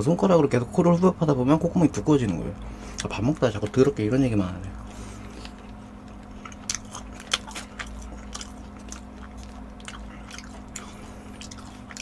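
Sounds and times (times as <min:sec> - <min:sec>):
close chewing of food: 0:02.1 - 0:12.0.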